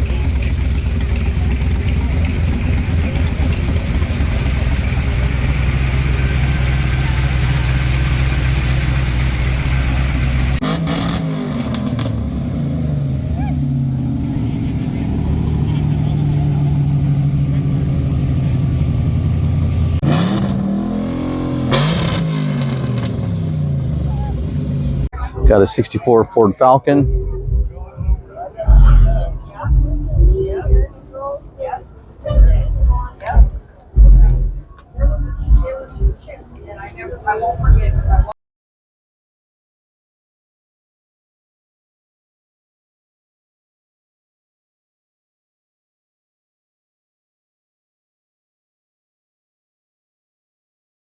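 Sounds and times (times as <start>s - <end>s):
low engine rumble: 0.0s - 38.4s.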